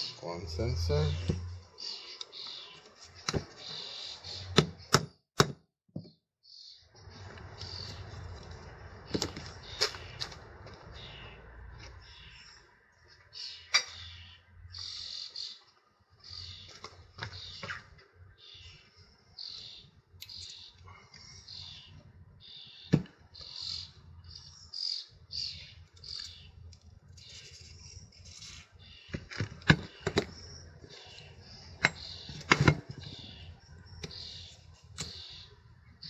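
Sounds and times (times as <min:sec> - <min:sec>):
bird chirping: 0:00.0 - 0:05.1, 0:06.1 - 0:36.0.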